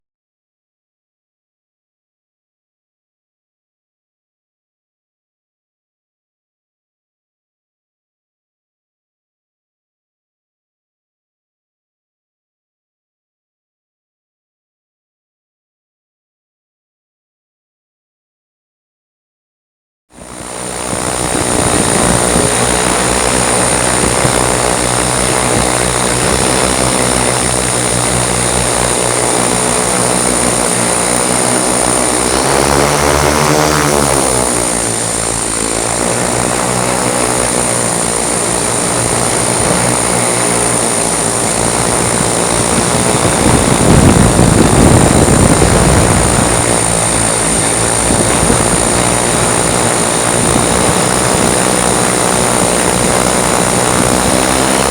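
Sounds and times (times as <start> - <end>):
multirotor drone humming: 20.1 - 54.9.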